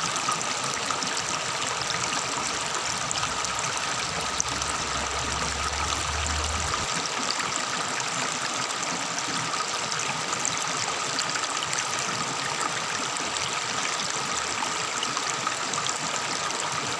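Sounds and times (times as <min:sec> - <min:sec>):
river babbling: 0:00.0 - 0:10.0.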